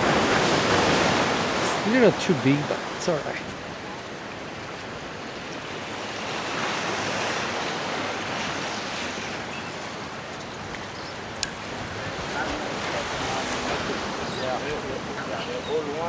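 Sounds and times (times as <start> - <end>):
ocean surf washing: 0.0 - 16.0
wind on microphone: 3.4 - 16.0.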